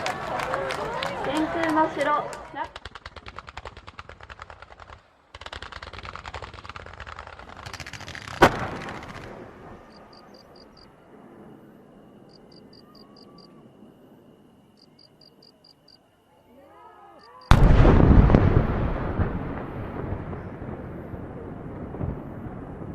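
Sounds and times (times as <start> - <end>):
fireworks crackling: 0.0 - 11.5, 17.4 - 22.9
loud firework bang: 8.1 - 9.5, 17.5 - 20.8.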